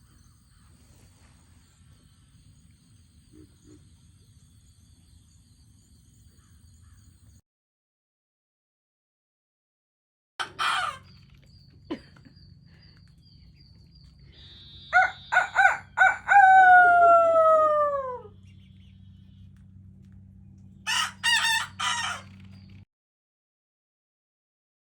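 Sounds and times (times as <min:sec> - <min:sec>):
young rooster crowing: 0:10.4 - 0:11.0, 0:14.9 - 0:18.3, 0:20.9 - 0:22.3
chicken calls: 0:10.4 - 0:13.2, 0:14.2 - 0:18.4, 0:20.9 - 0:22.6.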